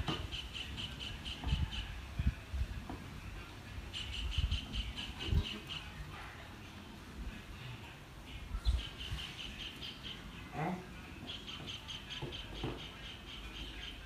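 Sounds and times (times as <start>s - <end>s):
bird chirping: 0.0s - 1.9s, 3.9s - 6.1s, 8.5s - 14.0s.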